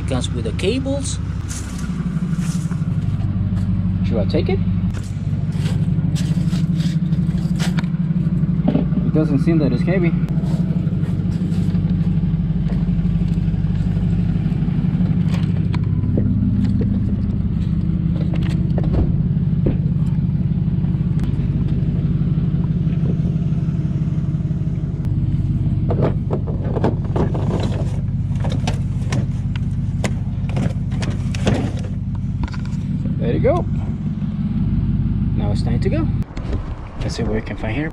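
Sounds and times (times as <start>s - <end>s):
vehicle engine idling: 0.0s - 37.9s
knocks and clatters of handling: 25.9s - 32.9s.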